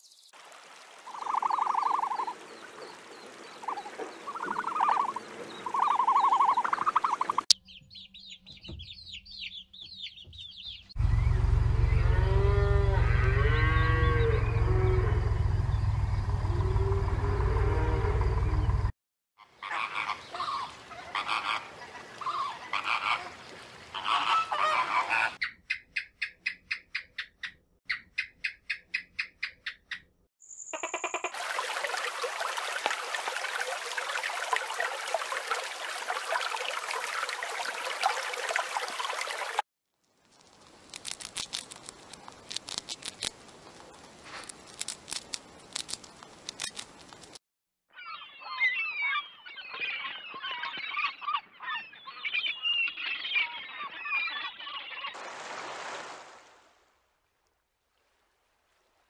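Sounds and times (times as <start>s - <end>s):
cattle mooing: 11.9s - 15.2s
animal calls: 24.0s - 25.5s.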